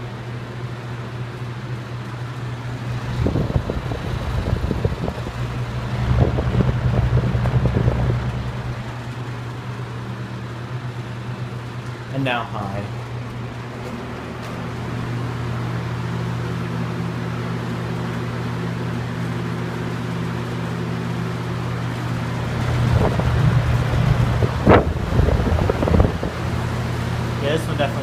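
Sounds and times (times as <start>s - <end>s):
box fans running: 0.0s - 28.0s
wind buffeting microphone: 3.0s - 9.0s, 22.5s - 26.8s.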